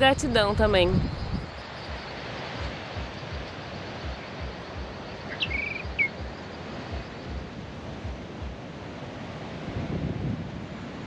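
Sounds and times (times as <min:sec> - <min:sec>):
soft low thumps: 0:00.0 - 0:08.7
wind and surf hiss: 0:00.0 - 0:11.0
bird whistling call: 0:03.1 - 0:06.6.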